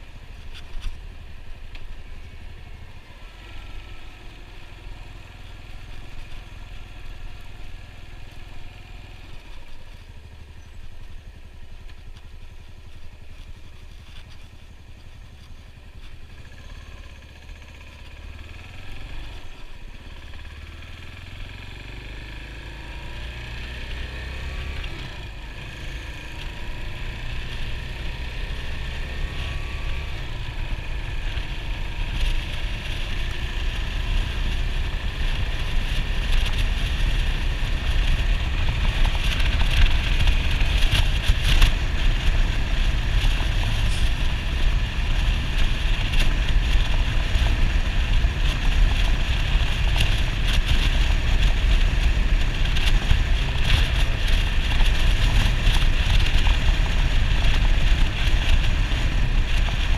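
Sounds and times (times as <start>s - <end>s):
motorcycle engine running: 0.0s - 59.9s
wind noise on microphone: 22.9s - 59.9s.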